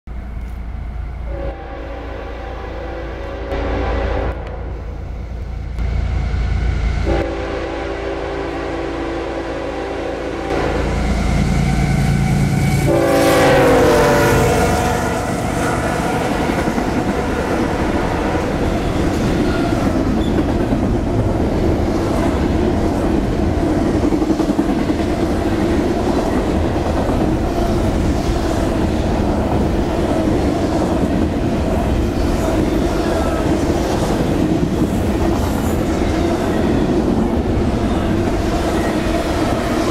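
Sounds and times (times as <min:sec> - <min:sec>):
train horn chord: 0:01.3 - 0:18.6.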